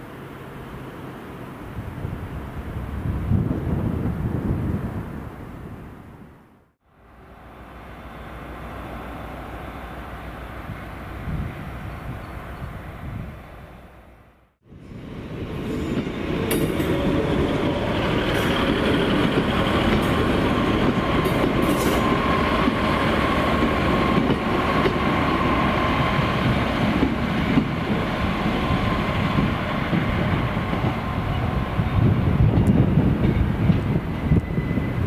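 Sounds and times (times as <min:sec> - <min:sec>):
train wheels on rails: 0:14.7 - 0:35.0.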